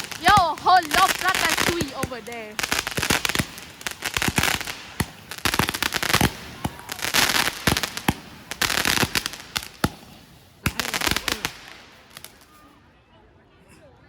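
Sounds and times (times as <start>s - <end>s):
fireworks bangs and crackle: 0.0s - 12.6s.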